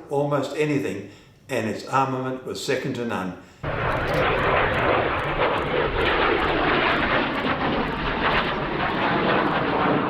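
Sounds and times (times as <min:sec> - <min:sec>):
aircraft engine running: 0:03.6 - 0:10.0.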